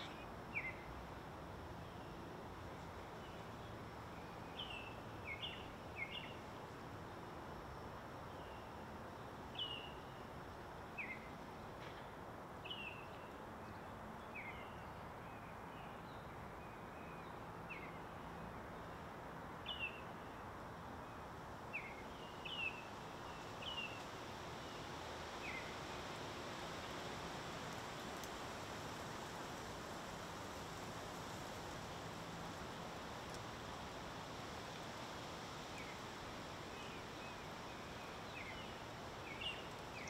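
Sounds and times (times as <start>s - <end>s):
outdoor hiss: 0.0s - 40.0s.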